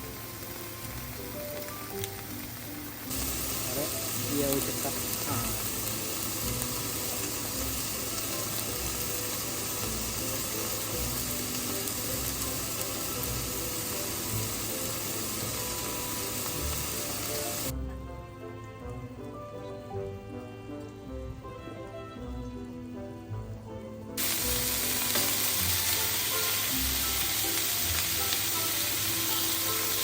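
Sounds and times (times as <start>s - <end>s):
food sizzling in frying: 0.0s - 17.8s, 24.2s - 30.0s
background music: 0.0s - 30.0s.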